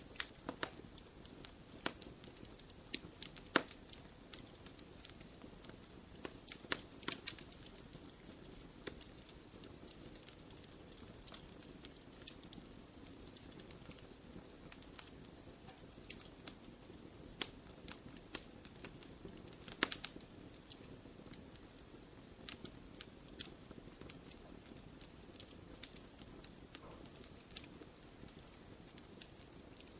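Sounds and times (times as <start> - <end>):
hiss of burning: 0.0 - 29.9
wood fire crackling: 0.0 - 29.9.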